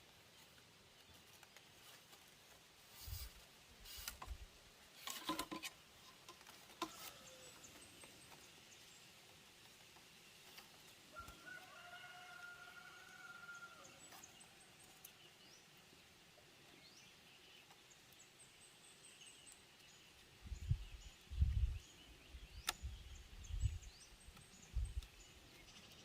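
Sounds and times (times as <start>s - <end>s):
rustling: 0.0s - 11.5s.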